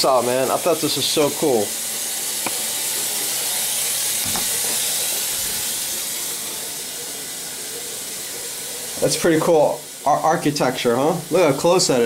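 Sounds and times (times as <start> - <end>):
steady hissing noise: 0.0 - 12.0.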